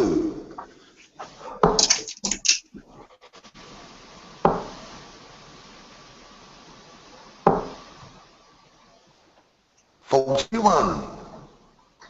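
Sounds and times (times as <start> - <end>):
dart striking dartboard: 4.5 - 4.7, 7.5 - 7.8.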